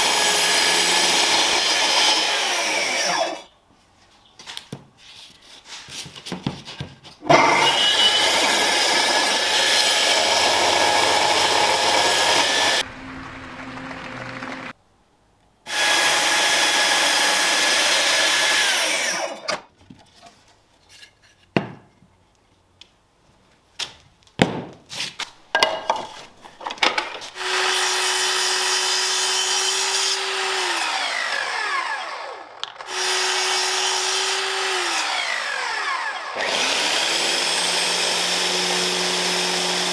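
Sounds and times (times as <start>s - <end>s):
power tool motor whining: 7.3s - 12.8s, 15.7s - 19.6s, 27.4s - 39.9s
handling knocks and clicks: 23.8s - 27.4s.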